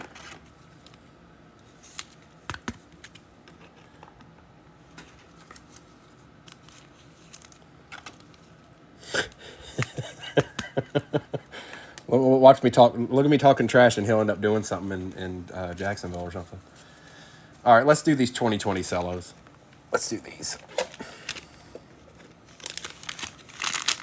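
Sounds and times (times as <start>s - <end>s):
trading cards clicking: 9.7s - 11.0s
pack wrappers crinkling: 20.6s - 24.0s.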